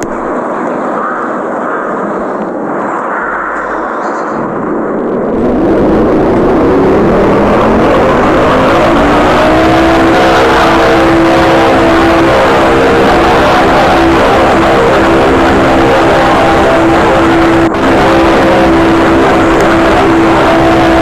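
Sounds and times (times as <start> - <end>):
rush of air: 0.0 - 16.5
fan motor humming: 0.0 - 21.0.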